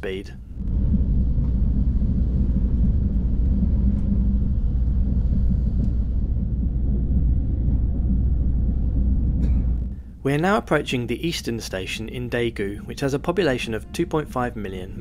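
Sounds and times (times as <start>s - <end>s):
train rumble inside coach: 0.6s - 15.0s.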